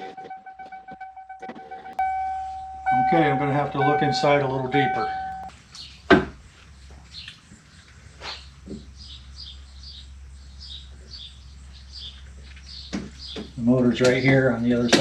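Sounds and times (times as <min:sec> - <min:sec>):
faint high chirps: 0:00.0 - 0:05.5.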